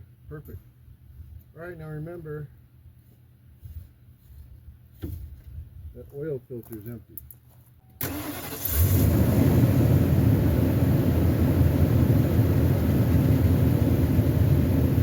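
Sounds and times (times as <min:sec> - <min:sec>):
engine cranking and starting: 0:08.0 - 0:09.4
engine idling: 0:08.0 - 0:15.0.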